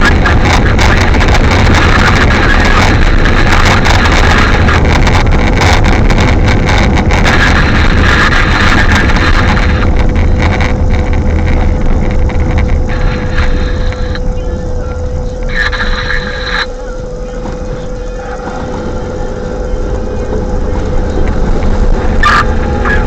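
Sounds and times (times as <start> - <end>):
faint steady hum: 0.0 - 23.0
wind buffeting microphone: 0.0 - 23.0.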